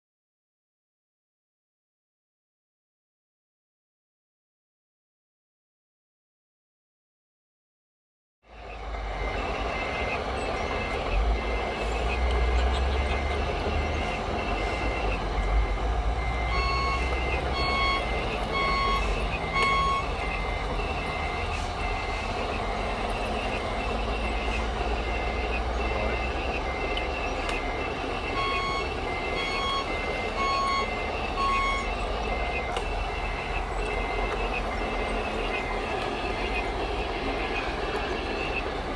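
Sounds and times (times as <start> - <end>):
lower reversing beeper: 8.5 - 38.9
reversing alarm beeping: 8.5 - 38.9.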